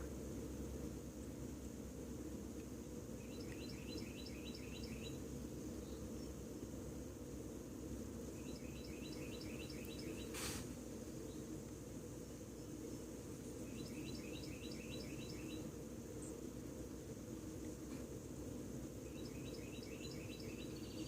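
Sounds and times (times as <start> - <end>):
wren singing: 3.2 - 6.4, 8.3 - 10.4, 13.6 - 16.4, 19.0 - 21.0.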